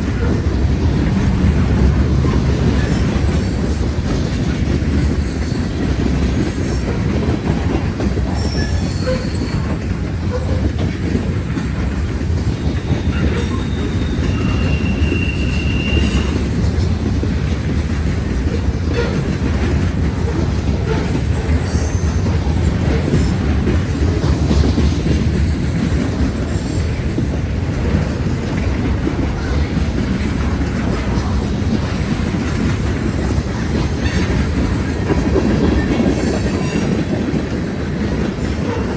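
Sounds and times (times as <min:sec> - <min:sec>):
freight train wheels rumbling: 0:00.0 - 0:38.9
high-pitched wheel squeals: 0:12.6 - 0:16.4.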